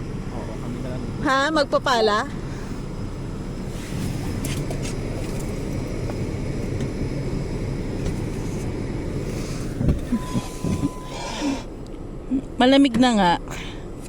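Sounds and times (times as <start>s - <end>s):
car idling rumble: 0.0s - 14.0s
short steady beep: 10.1s - 11.6s.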